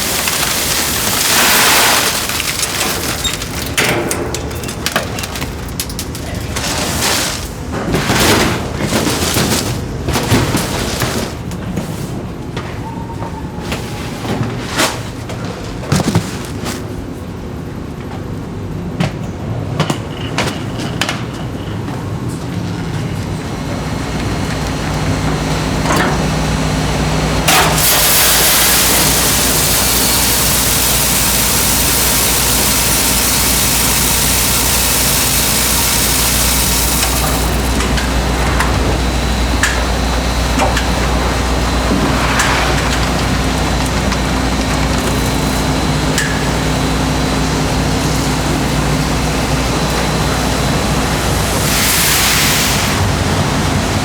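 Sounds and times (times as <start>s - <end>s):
loud hiss: 0.0s - 3.2s, 27.5s - 38.4s, 50.5s - 54.0s
factory machinery humming: 0.0s - 54.0s.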